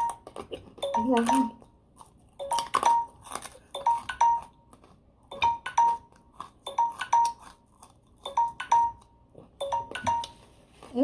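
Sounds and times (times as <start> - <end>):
electronic timer alarm chime: 0.8 - 1.6, 2.4 - 4.7, 5.3 - 7.4, 8.2 - 10.5.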